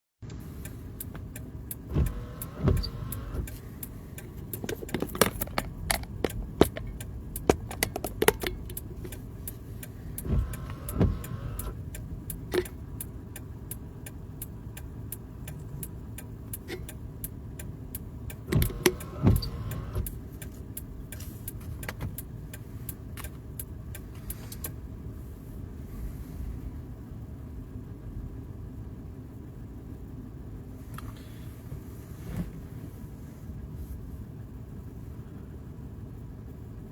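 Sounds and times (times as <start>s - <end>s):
low car interior rumble: 0.2s - 36.9s.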